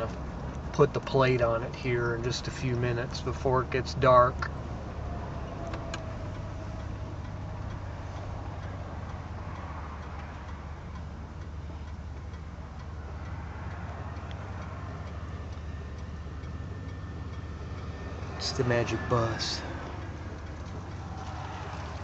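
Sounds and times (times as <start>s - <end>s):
car engine idling: 0.0s - 22.0s
faint regular ticking: 0.0s - 22.0s.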